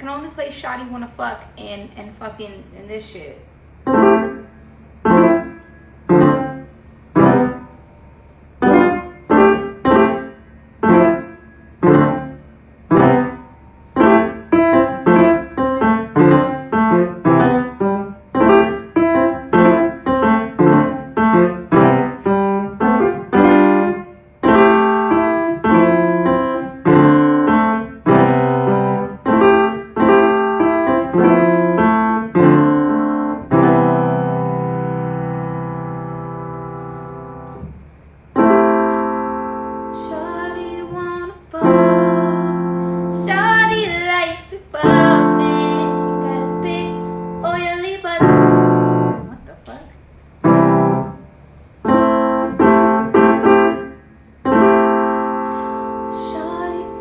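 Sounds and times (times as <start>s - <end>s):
piano chords and notes: 3.8s - 49.8s, 50.4s - 57.0s.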